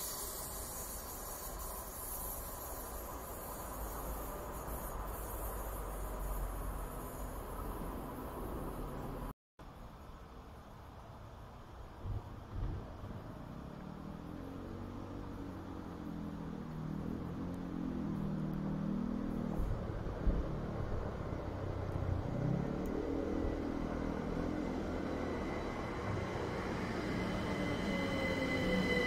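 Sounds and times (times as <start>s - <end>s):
high thin squeal: 0.0s - 8.2s, 23.3s - 29.0s
train rumble and hum: 11.8s - 29.0s.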